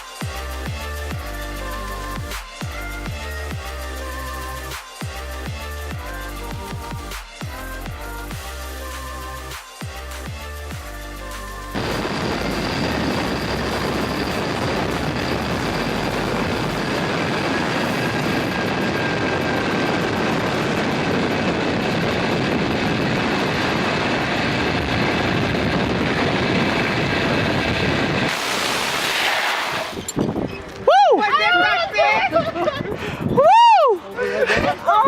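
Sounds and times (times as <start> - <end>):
high whine from pulleys: 0.0 - 30.8
zipline trolley rushing on cable: 0.0 - 35.0
wind over microphone: 11.8 - 33.7.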